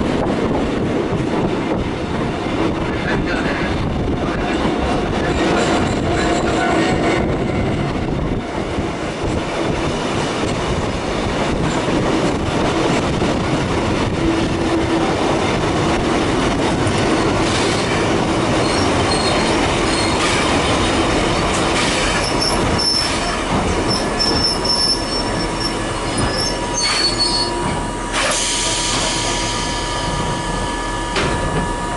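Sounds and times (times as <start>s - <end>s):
railcar rumble with motor hum: 0.0s - 31.9s
wheel squeals: 18.6s - 20.3s, 22.1s - 27.6s.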